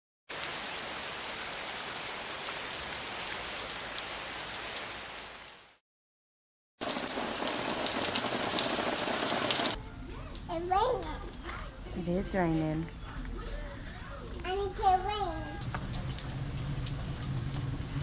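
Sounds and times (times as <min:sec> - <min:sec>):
rain falling on garden bed: 0:00.3 - 0:05.8, 0:06.8 - 0:09.8, 0:13.7 - 0:18.0
steady rain: 0:00.3 - 0:05.8, 0:06.8 - 0:09.8, 0:13.7 - 0:18.0.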